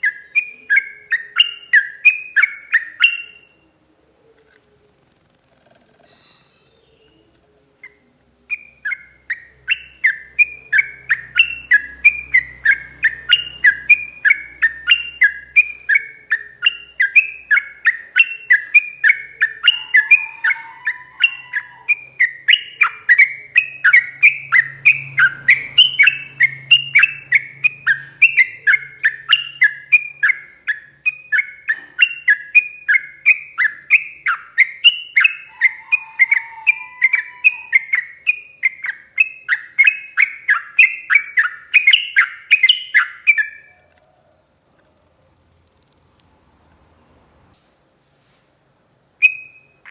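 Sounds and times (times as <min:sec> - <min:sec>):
soft low bird warble: 0:43.7 - 0:47.8.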